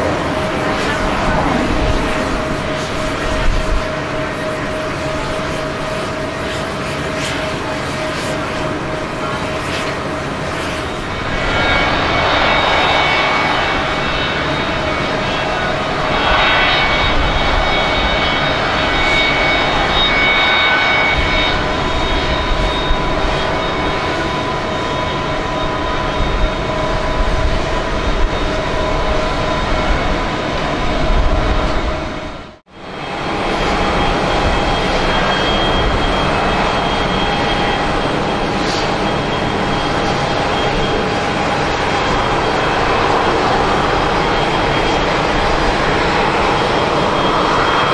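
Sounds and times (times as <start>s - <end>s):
jet engines running with whine: 0.0s - 47.9s.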